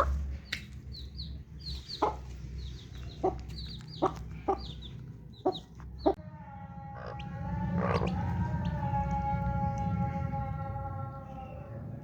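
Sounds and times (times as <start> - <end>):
chicks peeping: 0.0 - 6.2, 7.0 - 9.9
hen clucking: 0.0 - 6.2, 7.0 - 9.2.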